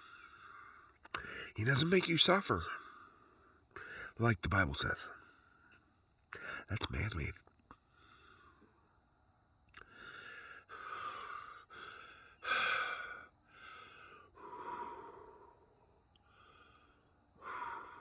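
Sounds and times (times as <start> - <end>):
man breathing heavily: 0.0 - 1.6, 2.7 - 4.2, 7.9 - 8.7, 9.8 - 18.0.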